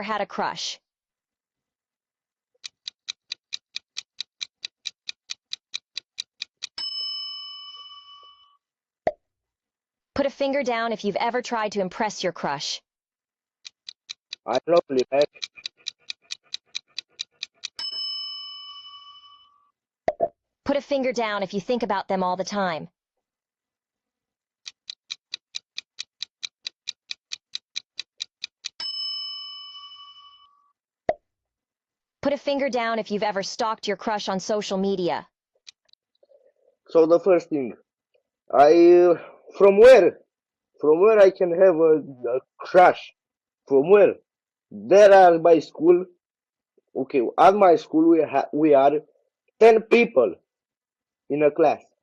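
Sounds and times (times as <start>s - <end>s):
clock-like timer ticks: 2.6s - 7.1s, 13.6s - 18.2s, 24.6s - 29.0s, 34.8s - 36.0s.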